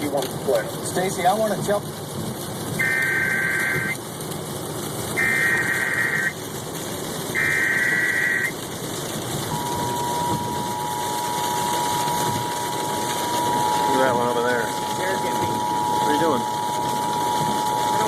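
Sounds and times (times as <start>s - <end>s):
car road and engine noise: 0.0s - 18.0s
screeching data bursts: 2.8s - 4.0s, 5.2s - 6.4s, 7.4s - 8.6s, 9.4s - 18.0s
two-tone attention signal: 9.5s - 18.0s.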